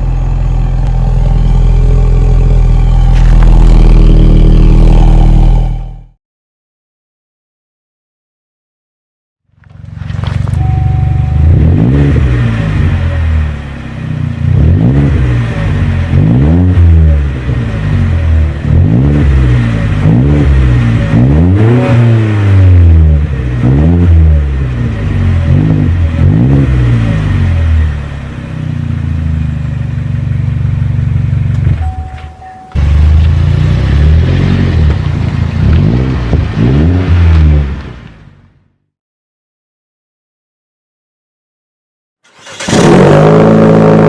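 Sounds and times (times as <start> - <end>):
car engine idling and revving: 0.0 - 6.2, 9.5 - 38.7, 42.3 - 44.0.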